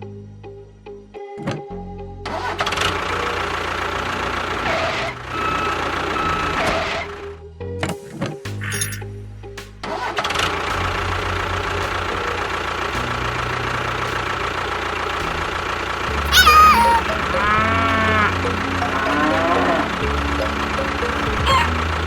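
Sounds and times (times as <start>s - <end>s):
music: 0.0s - 14.6s, 16.1s - 22.0s
engine-like running sound: 2.3s - 7.4s, 9.8s - 22.0s
short falling call: 16.3s - 20.0s, 21.3s - 21.8s.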